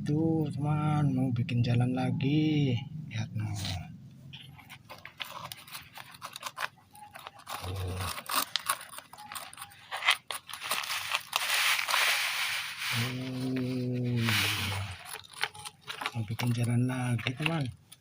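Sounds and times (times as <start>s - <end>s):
steady low hum: 0.0s - 5.2s
plastic scraping and clicking: 4.3s - 11.8s, 14.2s - 18.0s.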